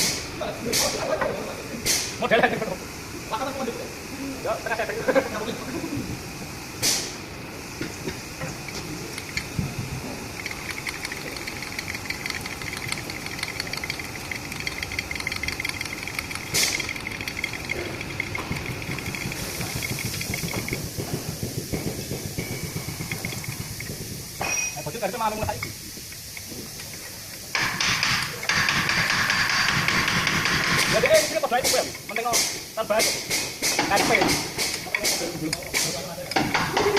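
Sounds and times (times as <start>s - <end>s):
sharp burst of hiss: 0.0s - 36.9s
machine fast ticking: 8.4s - 24.3s, 27.5s - 32.2s.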